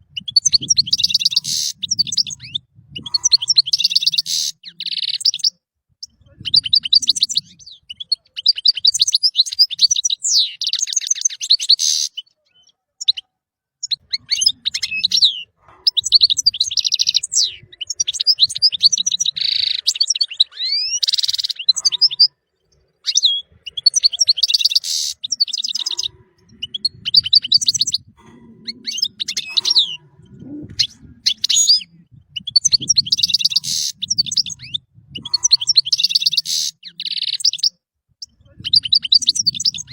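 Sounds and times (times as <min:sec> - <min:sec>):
goldfinch twittering song: 0:30.8 - 0:39.9.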